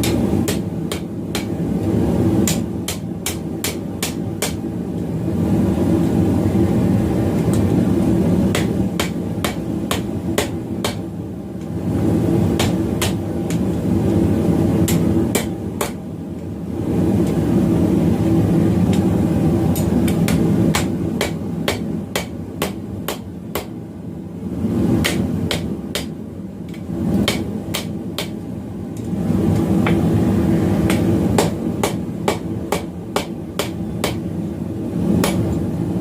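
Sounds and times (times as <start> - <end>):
hammer striking steel on anvil: 0.0 - 1.6, 2.4 - 4.6, 8.5 - 11.1, 12.6 - 13.2, 14.9 - 16.0, 19.7 - 23.7, 25.0 - 26.2, 27.2 - 28.4, 30.9 - 34.3, 35.2 - 35.5
loud steady rushing noise: 0.0 - 36.0.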